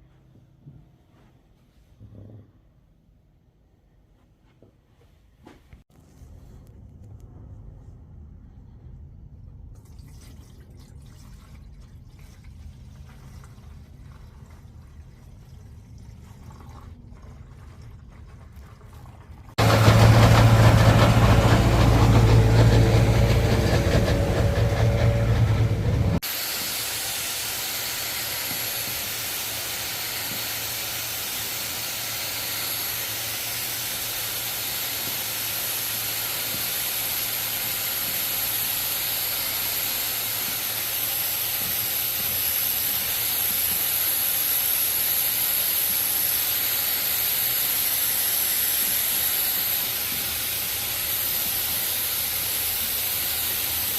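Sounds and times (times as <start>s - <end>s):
carpet cleaning machine suction hiss: 19.6s - 53.9s.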